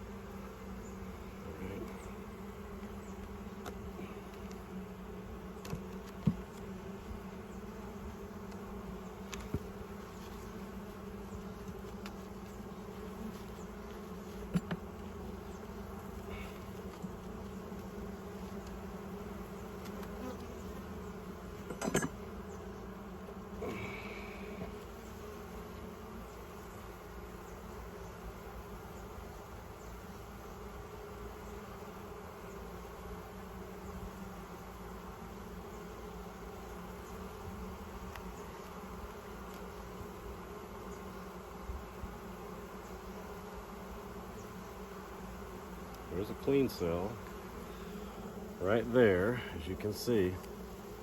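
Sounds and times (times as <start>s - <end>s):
bees buzzing: 0.0s - 51.0s
sharp clicks and knocks: 21.6s - 22.2s.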